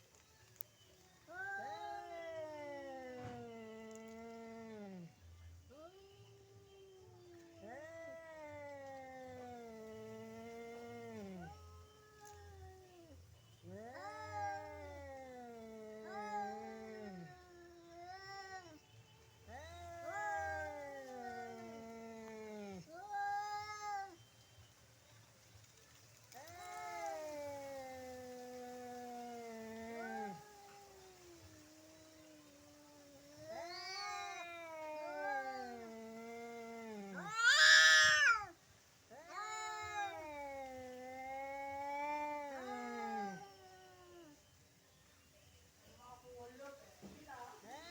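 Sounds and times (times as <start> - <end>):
cats caterwauling: 1.3 - 5.1, 7.2 - 18.8, 19.5 - 24.2, 26.3 - 44.4
cat screeching: 13.7 - 17.3, 19.5 - 21.7, 29.8 - 31.4, 33.3 - 44.4.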